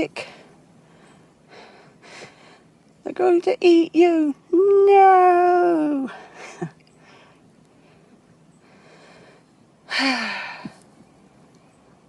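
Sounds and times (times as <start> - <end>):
woman breathing: 0.2 - 2.7, 6.1 - 10.8.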